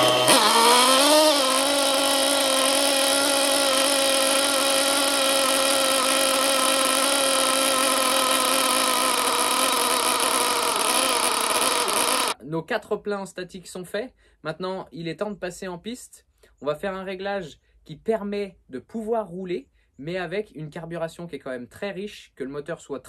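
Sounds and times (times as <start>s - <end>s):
nitro engine high whine: 0.0s - 12.4s.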